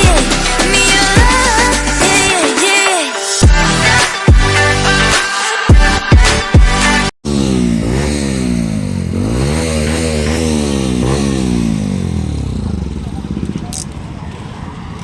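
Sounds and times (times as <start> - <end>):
motorcycle engine accelerating: 7.2 - 15.0
wind and road noise: 7.3 - 15.0.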